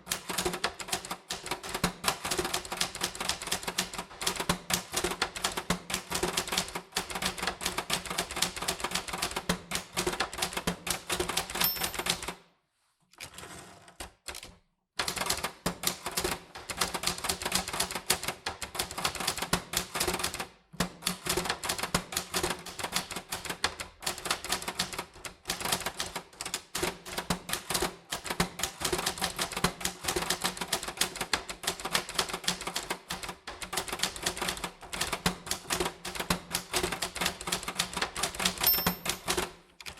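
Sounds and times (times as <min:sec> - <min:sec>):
typewriter keys striking: 0:14.3 - 0:39.9.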